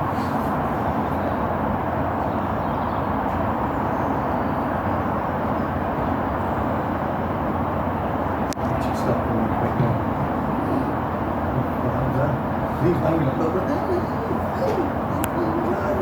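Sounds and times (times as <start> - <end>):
steam locomotive steady noise: 0.0 - 16.0.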